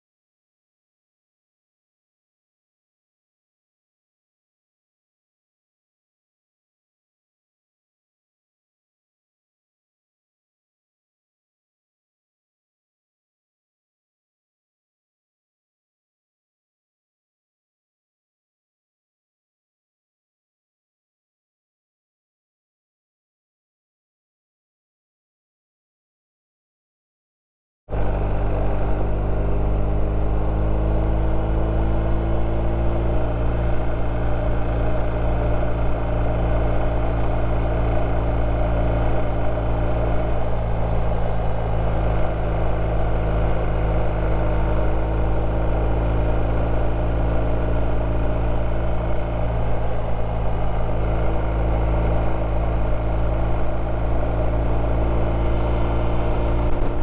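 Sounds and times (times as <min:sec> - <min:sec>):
motorcycle engine running: 0:27.9 - 0:57.0.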